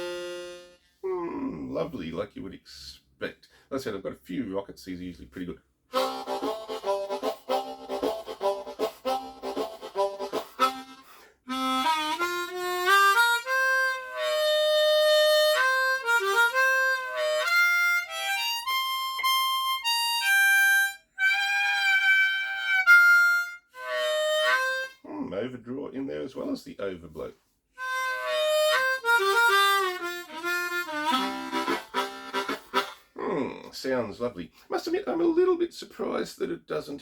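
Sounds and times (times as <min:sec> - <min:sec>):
harmonica playing: 0:00.0 - 0:01.0, 0:05.9 - 0:25.0, 0:27.8 - 0:33.1.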